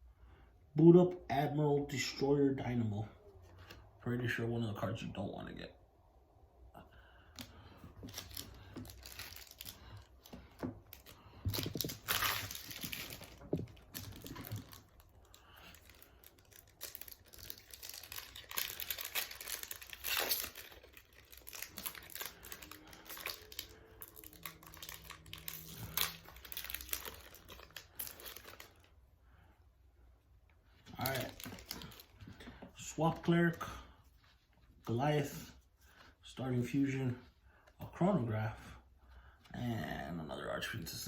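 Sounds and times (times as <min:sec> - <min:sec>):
foil wrapper crinkling and tearing: 0:08.0 - 0:28.9, 0:31.0 - 0:32.1.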